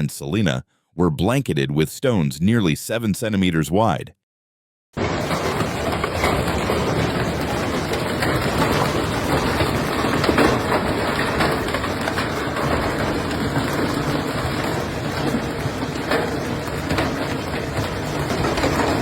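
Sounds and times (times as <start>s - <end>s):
hail and rain pelting down: 5.0s - 19.0s.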